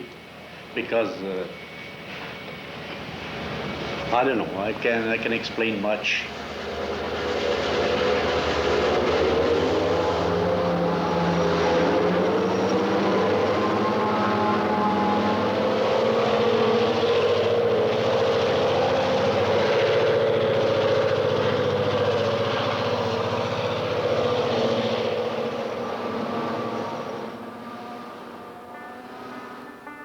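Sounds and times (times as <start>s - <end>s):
train mechanical drone: 0.0s - 30.0s.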